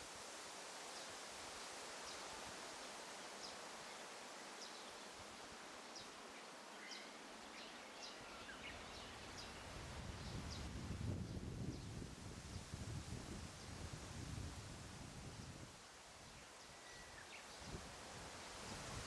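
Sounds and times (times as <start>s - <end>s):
steady soft hiss: 0.0s - 19.0s
wind rumble on microphone: 9.3s - 15.8s, 17.6s - 19.0s.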